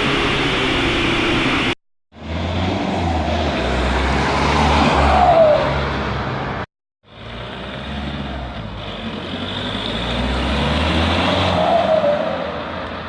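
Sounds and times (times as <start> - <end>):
diesel car engine driving: 2.2 - 13.0.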